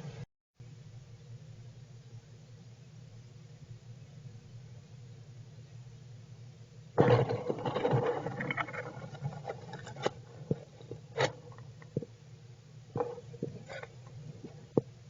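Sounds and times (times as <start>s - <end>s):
scrapes and clicks: 7.0s - 12.1s, 13.0s - 14.9s.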